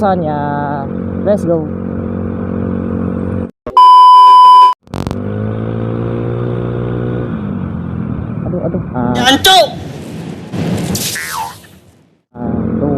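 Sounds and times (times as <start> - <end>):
loud electronic beep: 3.7 - 4.8.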